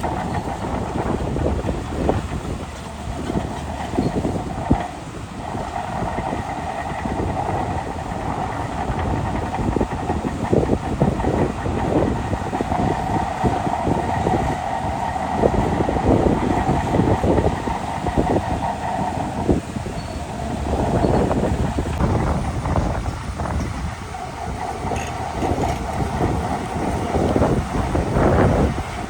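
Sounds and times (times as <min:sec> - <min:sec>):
engine drone: 0:00.0 - 0:29.0
steel tracks clanking: 0:00.0 - 0:29.0.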